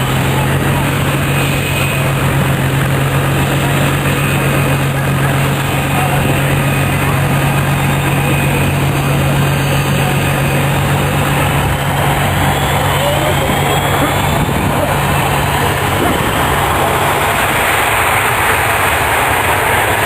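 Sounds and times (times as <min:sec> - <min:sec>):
engine-like drone: 0:00.0 - 0:20.0.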